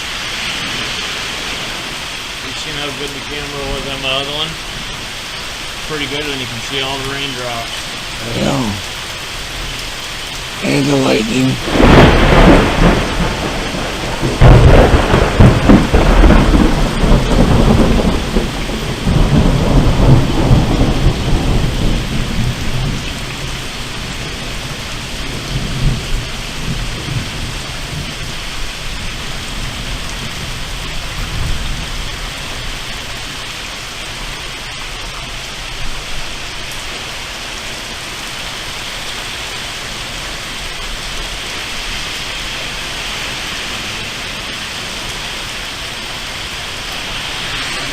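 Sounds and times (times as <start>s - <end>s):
steady rain: 0.0s - 47.9s
thunder rumbling: 11.6s - 32.0s, 42.8s - 47.9s.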